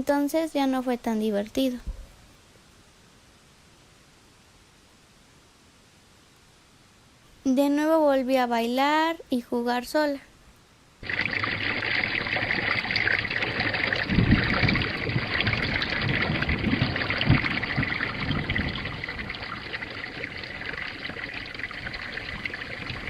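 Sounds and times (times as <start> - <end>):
steady rain falling: 10.5 - 23.0
low thumps: 11.0 - 21.1.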